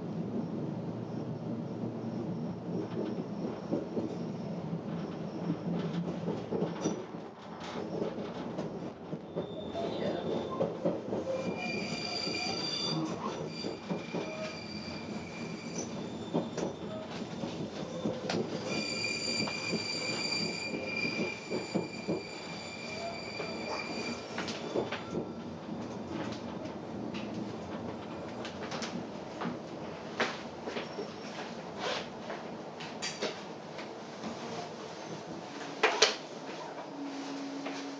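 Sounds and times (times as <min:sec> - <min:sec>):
train rumbling: 0:00.0 - 0:37.9
train wheels squealing: 0:09.2 - 0:25.6, 0:30.7 - 0:32.0.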